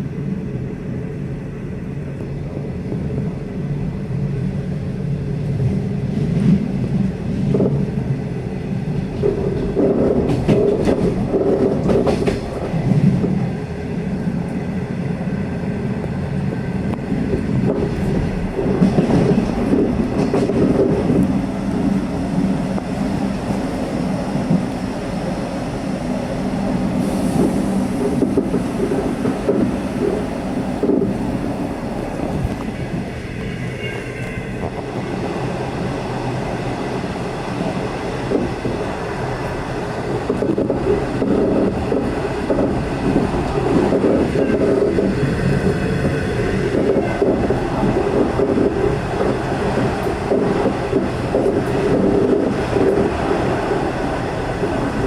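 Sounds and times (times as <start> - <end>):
train wheels rumbling: 0.0 - 55.0
faint high wheel squeal: 33.7 - 34.6.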